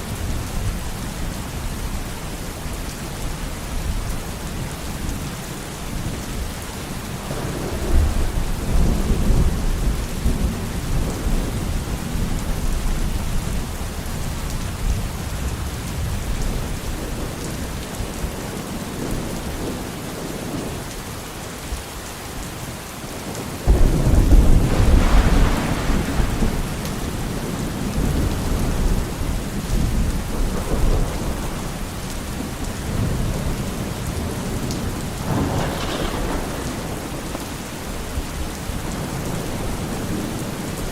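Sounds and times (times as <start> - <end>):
heavy rain: 0.0 - 40.9
rolling thunder: 7.2 - 17.4, 23.6 - 40.9.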